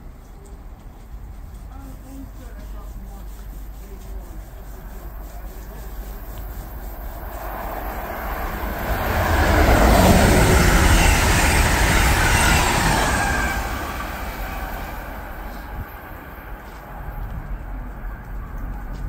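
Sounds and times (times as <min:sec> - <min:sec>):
train wheels rushing on rails: 0:00.0 - 0:19.0.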